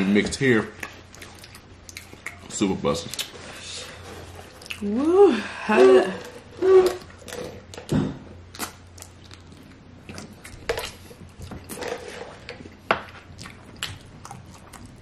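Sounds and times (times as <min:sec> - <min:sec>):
wet chewing: 0:00.8 - 0:03.4, 0:08.5 - 0:15.0
person humming: 0:04.8 - 0:07.0.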